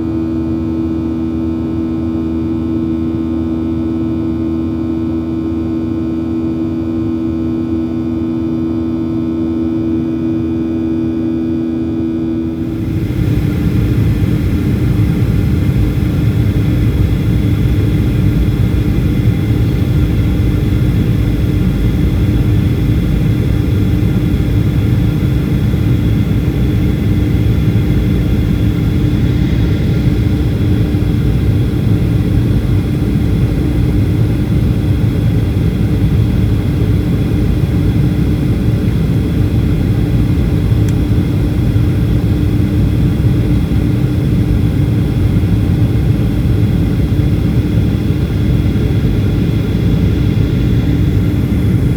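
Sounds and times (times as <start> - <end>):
steady hums: 8.3 - 51.9
jet engines rumbling: 12.5 - 51.9.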